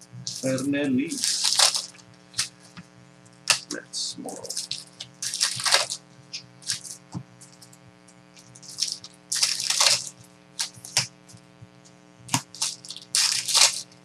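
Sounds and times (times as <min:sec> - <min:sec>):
steady low hum: 0:00.0 - 0:14.0
card packs crinkling and rustling: 0:00.3 - 0:02.8, 0:03.5 - 0:07.7, 0:08.5 - 0:11.1, 0:12.4 - 0:14.0.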